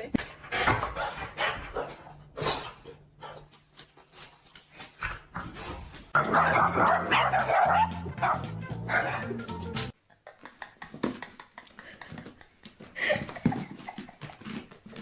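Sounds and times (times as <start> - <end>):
dog barking: 6.2 - 9.6.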